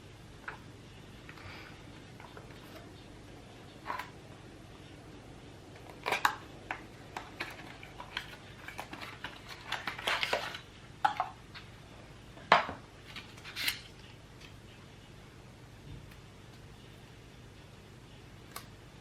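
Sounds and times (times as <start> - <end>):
packaging rustling: 5.8 - 10.7
hands handling packaging: 5.8 - 11.2.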